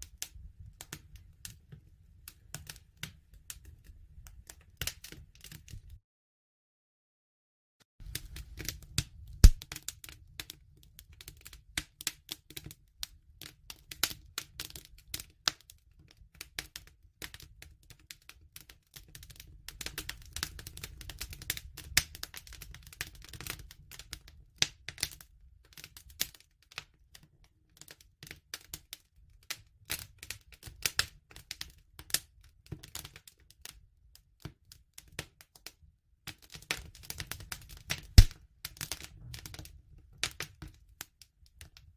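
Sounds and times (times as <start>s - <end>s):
campfire crackling: 8.0s - 15.4s, 36.8s - 40.4s.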